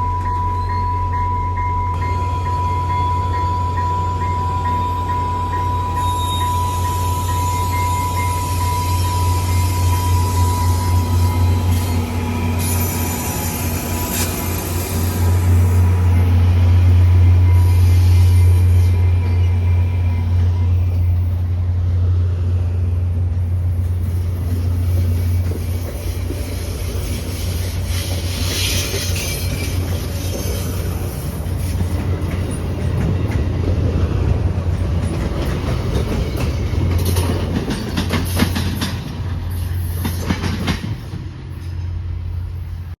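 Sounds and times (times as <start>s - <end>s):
low train rumble: 0.0s - 43.0s
train wheels clicking over rail joints: 23.7s - 42.0s.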